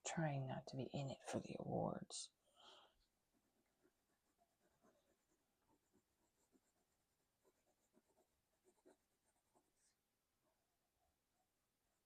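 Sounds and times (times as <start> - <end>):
pencil scratching on paper: 3.3 - 10.1.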